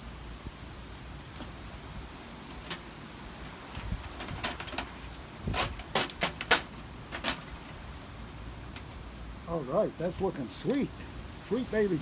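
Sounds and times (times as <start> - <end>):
metal screen clicking and crackling: 3.7 - 7.8.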